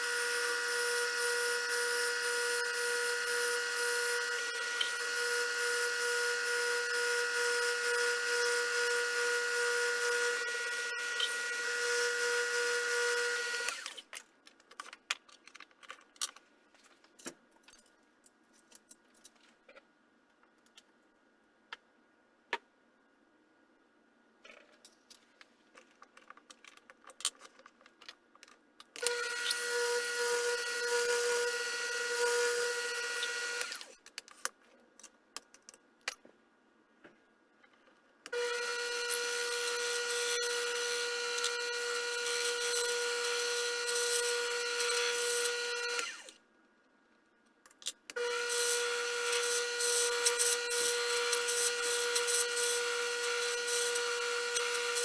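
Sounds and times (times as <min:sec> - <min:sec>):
machine tool motor whine: 0:00.0 - 0:14.0, 0:29.0 - 0:34.0, 0:38.3 - 0:46.4, 0:48.1 - 0:55.0.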